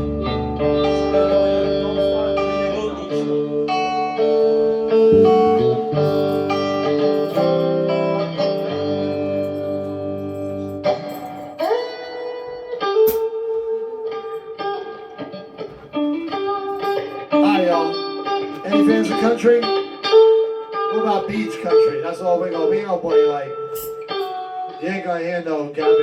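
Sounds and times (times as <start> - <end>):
low bass line: 0.0 - 3.0, 5.0 - 7.0
guitar playing chords: 0.0 - 26.0.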